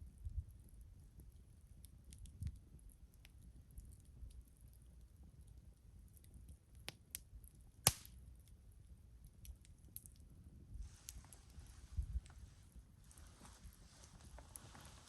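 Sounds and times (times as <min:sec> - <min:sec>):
campfire crackling and popping: 0:00.0 - 0:15.0
soft rustle: 0:10.7 - 0:15.0.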